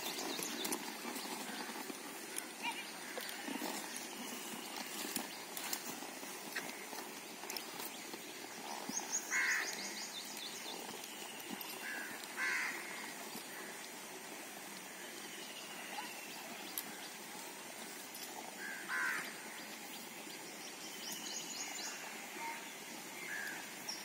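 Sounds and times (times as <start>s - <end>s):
birds calling harshly: 0.0s - 13.8s, 18.6s - 24.0s.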